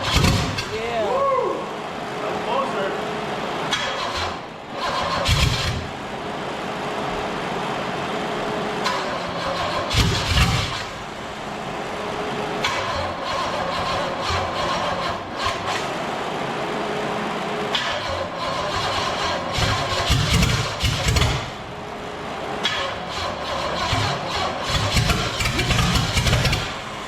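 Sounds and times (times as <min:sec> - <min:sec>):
engine running roughly: 0:00.0 - 0:27.0.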